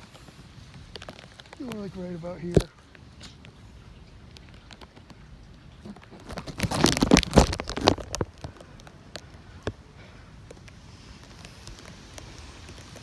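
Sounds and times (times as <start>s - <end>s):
close crackling and rustling: 0.0s - 13.0s
low steady outdoor noise: 0.0s - 13.0s.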